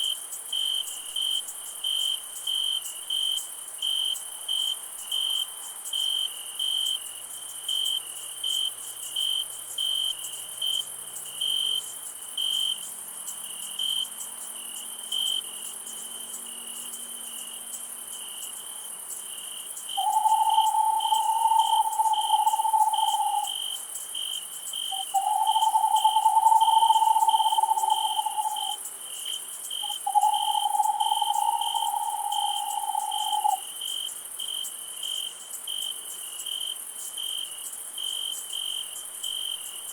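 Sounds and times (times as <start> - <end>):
cricket chirping: 0.0 - 39.9
high steady insect hiss: 0.0 - 39.9
long low animal calls: 20.0 - 23.6, 24.9 - 28.8, 29.8 - 33.6.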